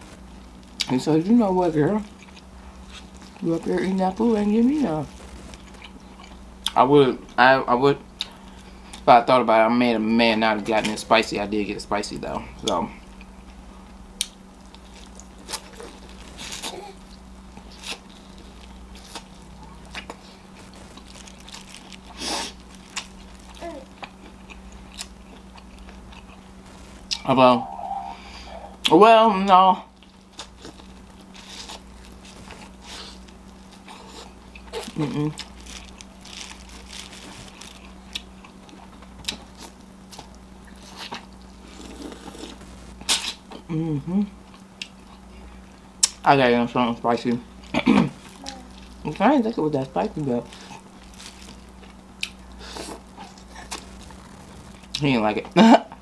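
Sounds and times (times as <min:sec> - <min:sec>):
low electrical hum: 0:00.0 - 0:56.0
person chewing food: 0:02.0 - 0:03.4, 0:05.0 - 0:07.4, 0:12.7 - 0:28.9, 0:29.9 - 0:43.7, 0:50.5 - 0:55.0.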